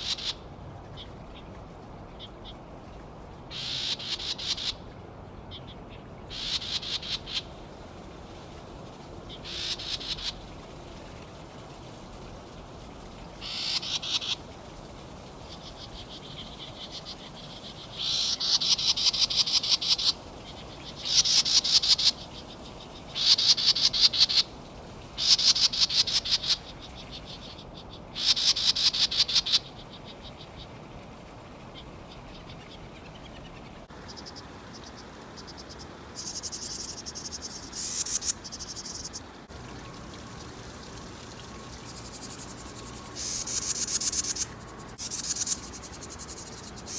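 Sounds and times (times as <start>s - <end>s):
animal calling in pulsed trills: 34.0s - 46.9s.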